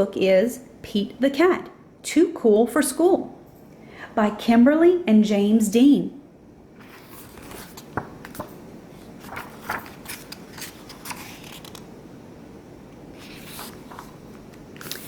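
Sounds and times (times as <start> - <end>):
low steady room hiss: 0.0 - 15.0
book pages turning: 6.8 - 11.9, 13.1 - 15.0
paper rustling: 6.8 - 11.9, 13.1 - 15.0.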